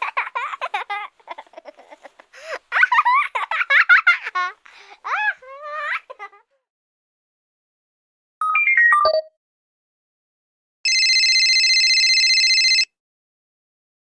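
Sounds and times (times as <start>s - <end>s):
warbling electronic telephone ring: 10.9s - 12.9s.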